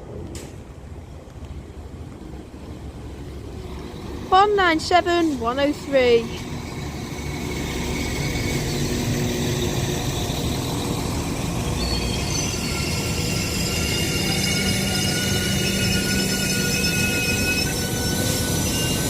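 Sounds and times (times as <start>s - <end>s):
train rumble: 0.0s - 19.0s
high brake squeals: 6.6s - 19.0s.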